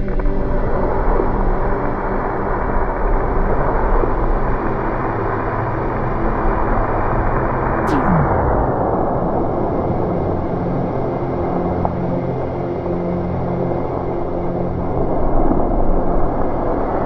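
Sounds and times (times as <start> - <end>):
loud rushing rumble: 7.9 - 9.6.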